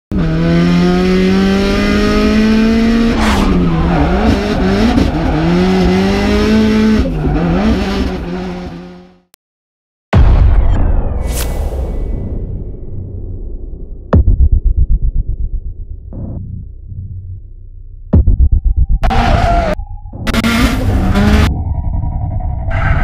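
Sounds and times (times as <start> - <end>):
car engine revving: 0.1 - 9.3, 19.0 - 23.0
electronic music with heavy bass: 18.1 - 23.0.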